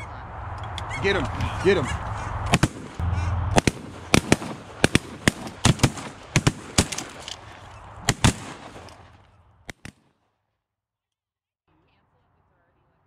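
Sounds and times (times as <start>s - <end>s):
shotguns firing: 0.8s - 10.1s.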